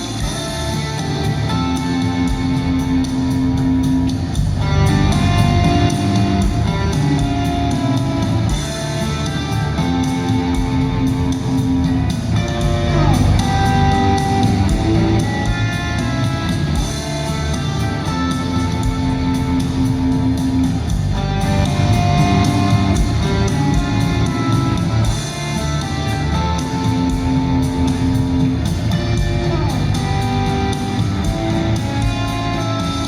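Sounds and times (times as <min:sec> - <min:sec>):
guitars: 0:00.0 - 0:33.0
rock band playing live: 0:00.0 - 0:33.0.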